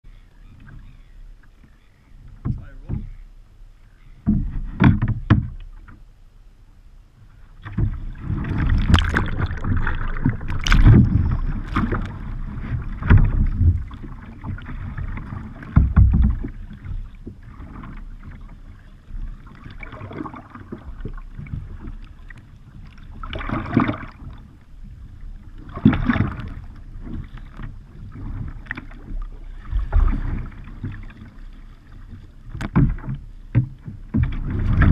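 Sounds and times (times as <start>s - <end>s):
kayak paddle splashing in water: 7.4s - 34.9s.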